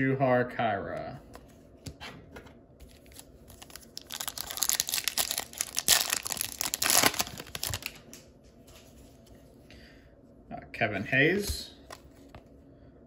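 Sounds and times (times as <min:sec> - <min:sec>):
foil wrapper crinkling and tearing: 0:02.8 - 0:08.2.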